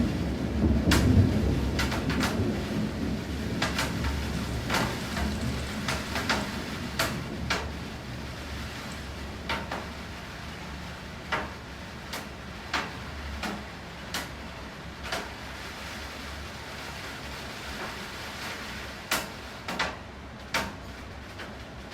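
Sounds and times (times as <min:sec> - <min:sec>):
low thunder rumble: 0:00.0 - 0:11.0
rain hissing: 0:00.0 - 0:21.9.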